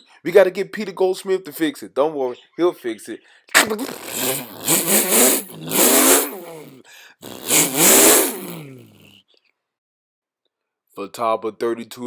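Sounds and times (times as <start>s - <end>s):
engine revving: 3.6s - 9.0s.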